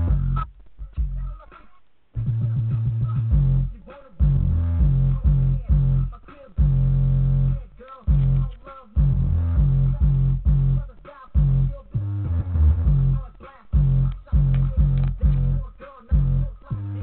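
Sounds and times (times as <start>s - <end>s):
music with bass guitar and guitar: 0.0s - 1.5s, 2.2s - 17.0s.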